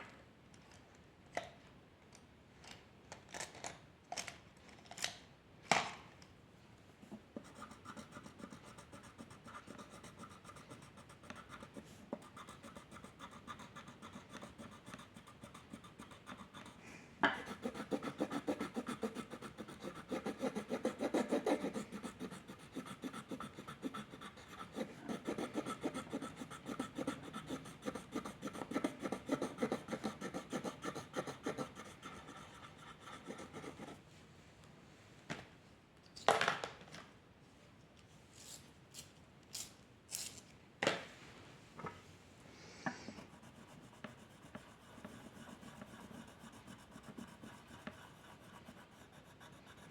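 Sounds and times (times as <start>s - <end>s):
pencil scratching on paper: 7.4s - 34.0s, 43.1s - 49.9s.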